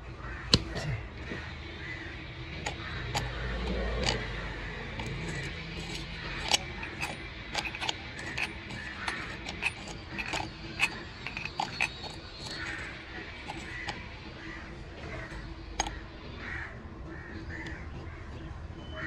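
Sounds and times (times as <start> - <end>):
clicks of small hard parts: 0.5 - 1.0, 2.6 - 4.4, 5.0 - 14.1, 15.4 - 16.0.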